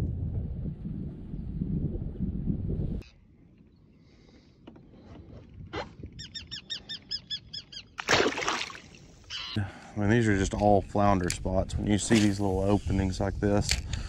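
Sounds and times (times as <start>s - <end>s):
fish splashing into water: 8.0s - 9.0s
bird calling short notes: 9.3s - 9.6s.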